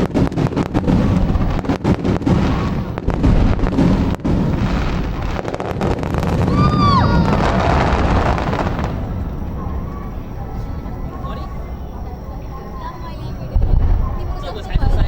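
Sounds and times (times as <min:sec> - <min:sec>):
low rumble of echoing booms: 0:00.0 - 0:12.5, 0:13.4 - 0:15.0
fireworks bangs: 0:00.0 - 0:12.8, 0:13.4 - 0:15.0
fireworks crackles: 0:00.0 - 0:15.0.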